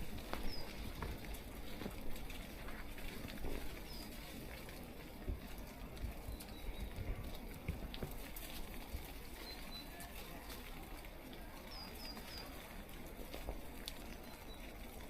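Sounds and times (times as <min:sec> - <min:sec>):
bird chirping: 0:00.4 - 0:00.8, 0:11.7 - 0:12.5.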